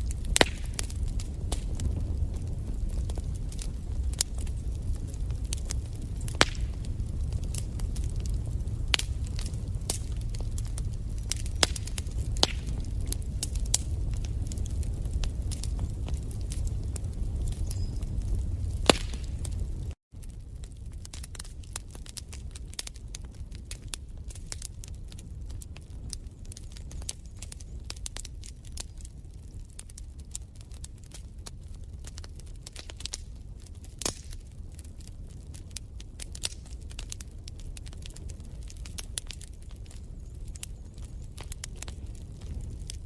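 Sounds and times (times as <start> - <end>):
low fire rumble: 0.0 - 43.0
wood fire crackling and popping: 0.0 - 43.0.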